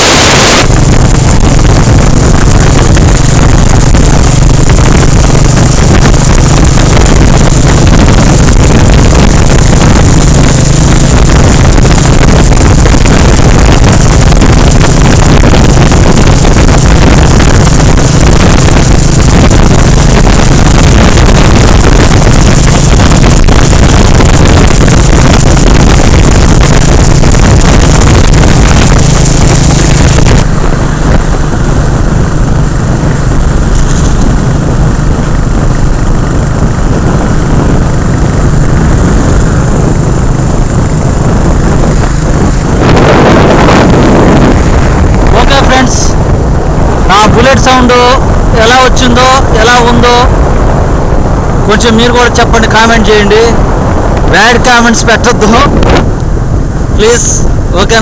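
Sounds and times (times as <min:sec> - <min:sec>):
motorcycle engine cruising: 0:00.0 - 0:58.0
wind noise on microphone: 0:00.0 - 0:58.0.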